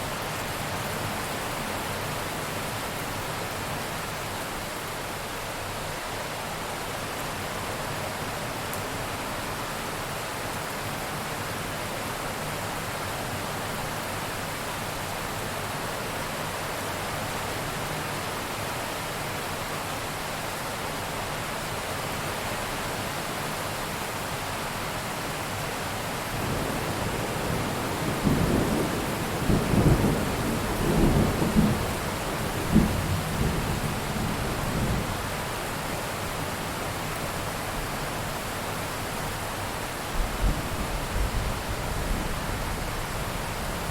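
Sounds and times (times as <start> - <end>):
heavy rain falling: 0.0 - 43.9
thunder cracking and rumbling: 32.6 - 33.7.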